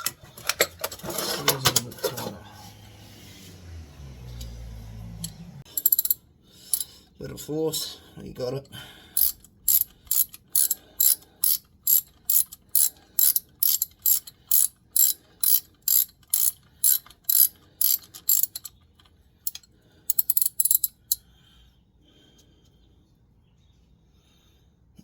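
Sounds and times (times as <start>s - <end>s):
ratchet wrench clicking: 5.2s - 6.8s, 9.2s - 18.8s, 19.4s - 21.2s.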